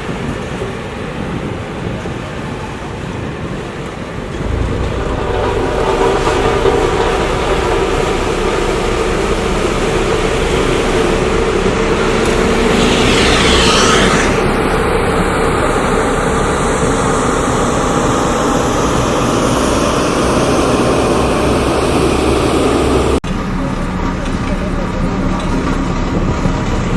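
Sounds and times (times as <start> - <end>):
heavy engines running: 3.9 - 26.9
high rushing sound: 4.1 - 23.2.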